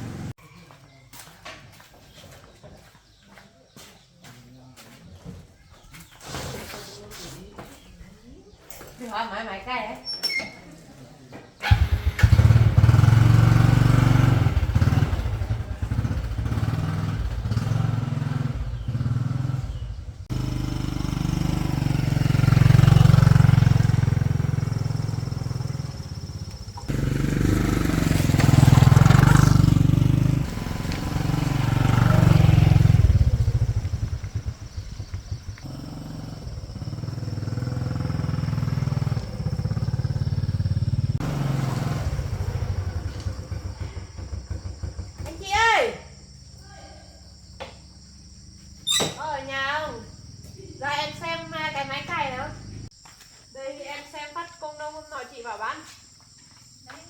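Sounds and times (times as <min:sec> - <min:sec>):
small engine revving: 0:00.0 - 0:00.4, 0:11.6 - 0:45.4, 0:50.2 - 0:52.9.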